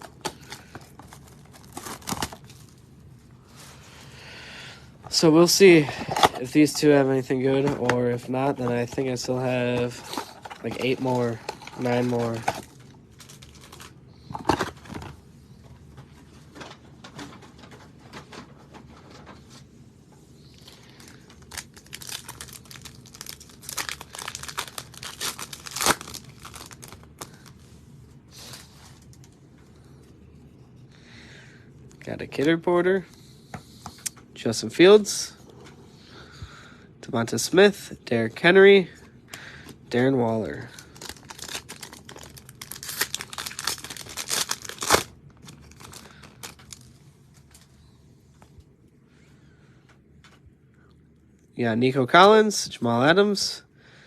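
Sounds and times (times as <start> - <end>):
plastic wrapping tearing and crinkling: 0.0 - 2.8, 7.8 - 14.9, 20.6 - 27.6, 40.5 - 47.6.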